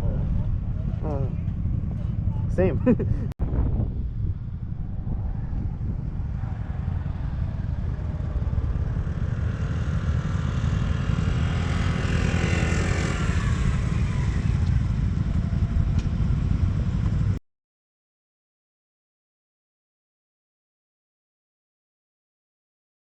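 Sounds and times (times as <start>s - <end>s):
motorcycle engine running: 0.0s - 17.4s
wind rumble on microphone: 0.0s - 17.4s.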